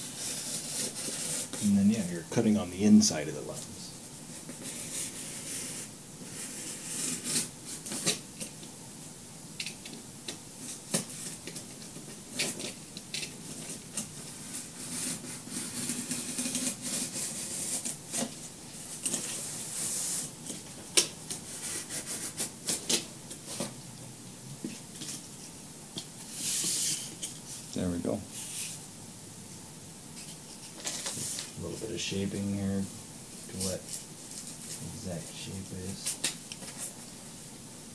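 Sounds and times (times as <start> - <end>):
craft knife cutting cardboard: 0.0 - 1.7, 4.4 - 8.2, 12.3 - 18.4, 19.0 - 23.7.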